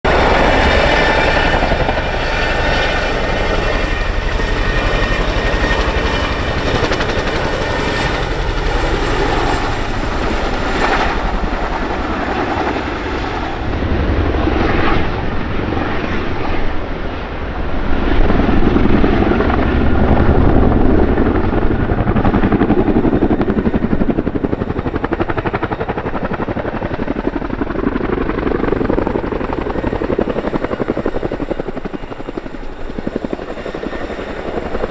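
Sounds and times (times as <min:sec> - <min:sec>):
helicopter rotors beating: 0:00.1 - 0:34.9
turbine engines whining: 0:00.1 - 0:34.9.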